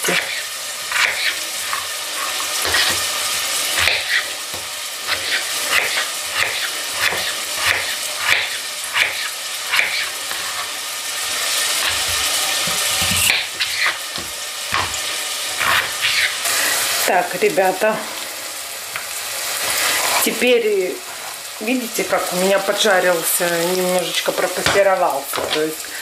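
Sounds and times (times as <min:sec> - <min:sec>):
vegetables sizzling in pot: 0:00.0 - 0:26.0
knife striking cutting board: 0:11.8 - 0:15.0.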